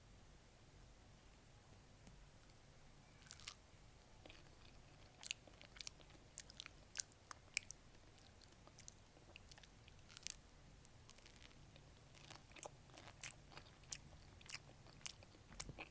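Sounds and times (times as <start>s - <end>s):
biting and chewing a peach: 11.0s - 15.9s.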